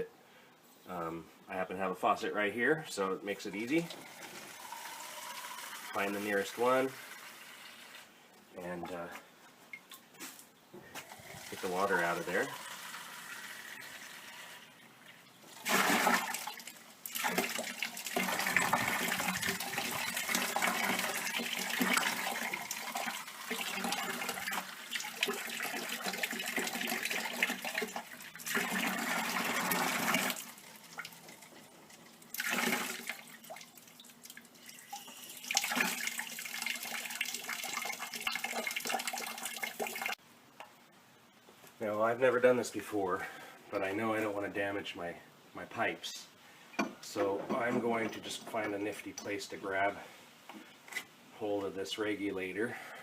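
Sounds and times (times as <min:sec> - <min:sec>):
water rushing from faucet: 0:03.9 - 0:08.0, 0:15.6 - 0:31.6, 0:32.3 - 0:40.2.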